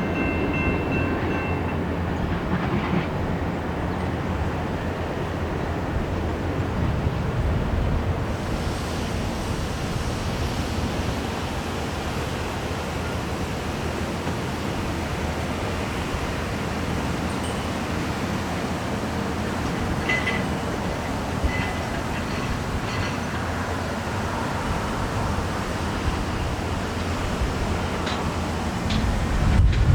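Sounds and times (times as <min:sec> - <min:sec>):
train passing at speed: 0:00.0 - 0:29.9
wind on microphone: 0:24.3 - 0:29.9.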